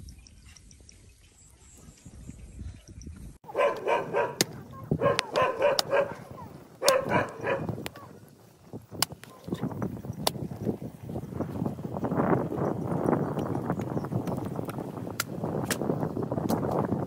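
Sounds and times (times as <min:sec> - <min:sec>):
dog barking and yelping: 0:03.4 - 0:08.2.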